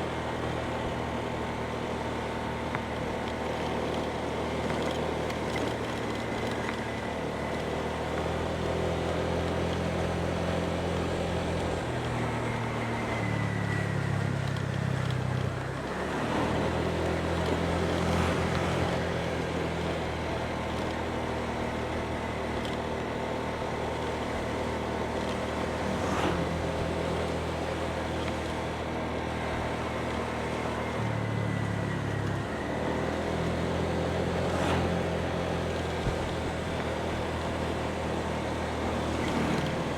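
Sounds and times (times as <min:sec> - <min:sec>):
road noise: 0:00.0 - 0:39.9.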